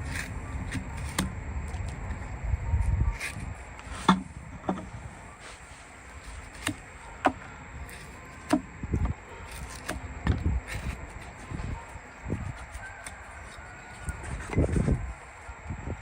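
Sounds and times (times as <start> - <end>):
dull thumps: 3.9 - 5.0.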